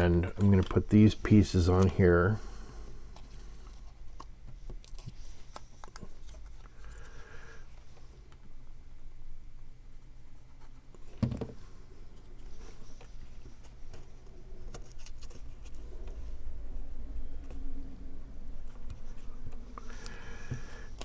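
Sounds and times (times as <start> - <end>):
cardstock rustling: 0.0 - 2.4, 12.4 - 16.4.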